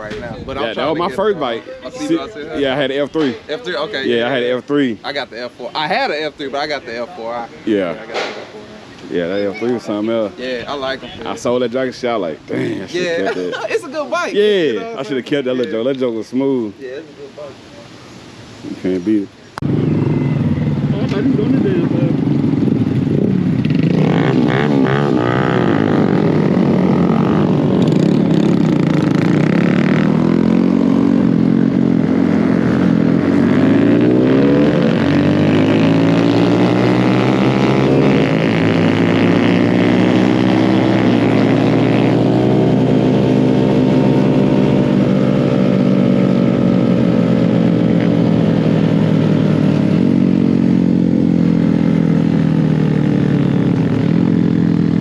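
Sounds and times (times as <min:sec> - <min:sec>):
motorcycle engine running: 0:19.6 - 0:55.0.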